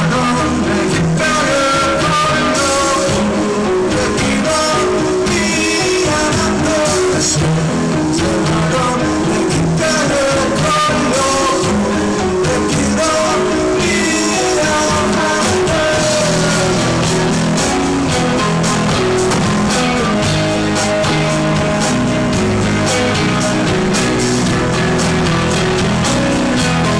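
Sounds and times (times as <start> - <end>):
drum kit: 0.0 - 26.9
electric guitars: 0.0 - 26.9
person singing: 0.0 - 26.9.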